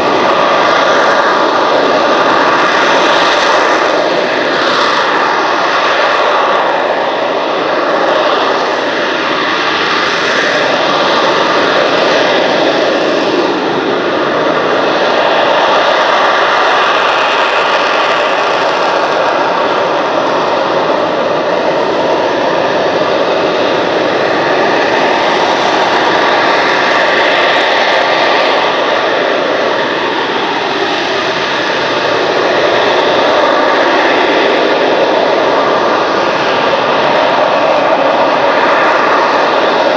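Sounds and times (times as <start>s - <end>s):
jet engine running loudly: 0.0s - 39.9s.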